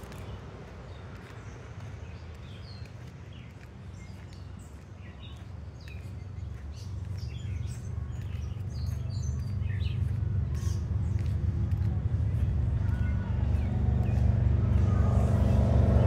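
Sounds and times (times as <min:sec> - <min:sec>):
songbirds chirping: 0:00.0 - 0:16.0
low rumble: 0:07.3 - 0:16.0.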